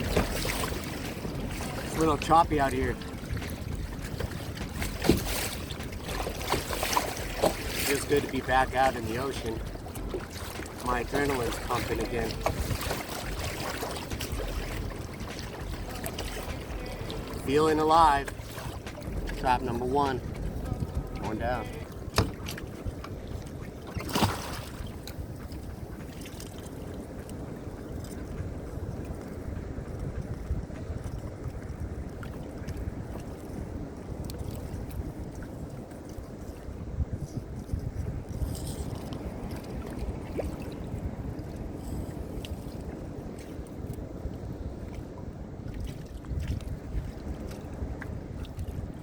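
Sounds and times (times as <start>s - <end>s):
water splash: 0.0s - 22.8s, 23.4s - 25.1s
choppy water against kayak: 0.0s - 49.0s
wind: 0.0s - 49.0s.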